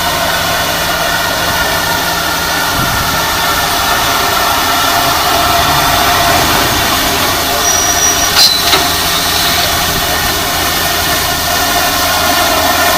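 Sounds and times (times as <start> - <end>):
steam locomotive hissing: 0.0 - 12.9.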